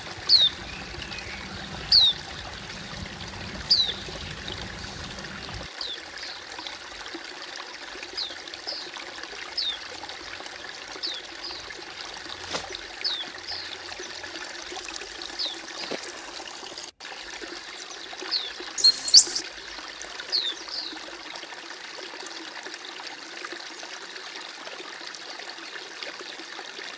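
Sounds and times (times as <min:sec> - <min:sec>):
bird chirping: 0:00.0 - 0:05.7, 0:18.8 - 0:19.4
trickling running water: 0:00.0 - 0:26.9.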